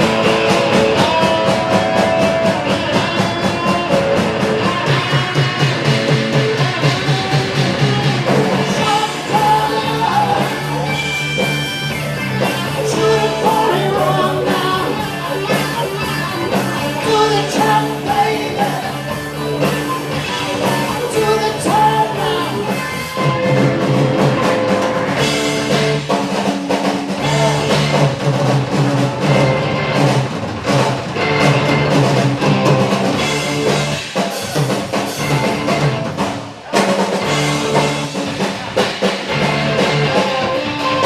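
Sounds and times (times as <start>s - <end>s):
bass guitar: 0.0s - 41.0s
drum kit: 0.0s - 41.0s
electric guitar: 0.0s - 41.0s
person singing: 0.6s - 5.6s, 6.6s - 23.7s, 27.2s - 28.2s, 39.7s - 41.0s.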